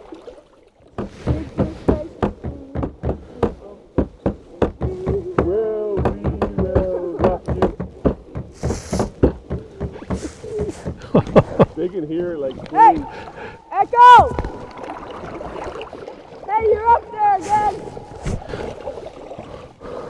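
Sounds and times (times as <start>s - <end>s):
person calling: 1.0s - 15.0s, 16.5s - 18.5s
sharp knocks: 1.0s - 15.0s, 16.5s - 18.4s.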